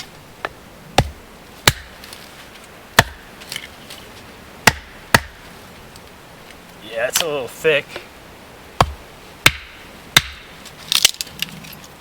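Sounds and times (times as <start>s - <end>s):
axe chopping firewood: 0.4s - 2.1s, 2.9s - 3.7s, 4.6s - 5.4s, 8.8s - 11.2s.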